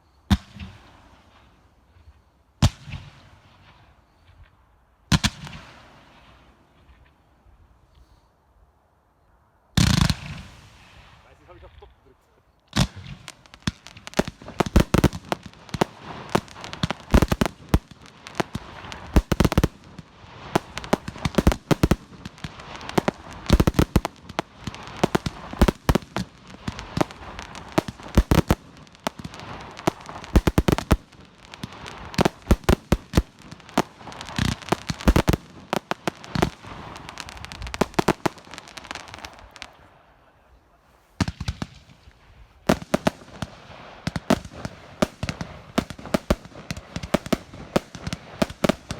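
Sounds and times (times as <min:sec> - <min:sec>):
steady hiss: 0:09.8 - 0:40.4
fireworks shells bursting: 0:12.8 - 0:39.2.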